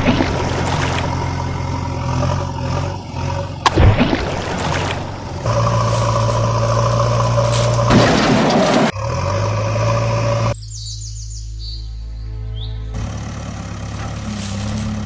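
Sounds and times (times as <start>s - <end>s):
heavy vehicle engine running: 0.0s - 10.7s, 12.1s - 15.0s.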